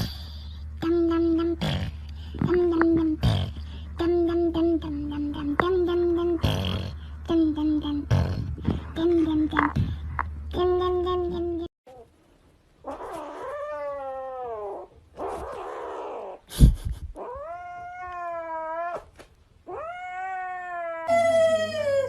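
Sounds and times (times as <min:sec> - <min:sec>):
cat yowling: 0:19.7 - 0:22.0.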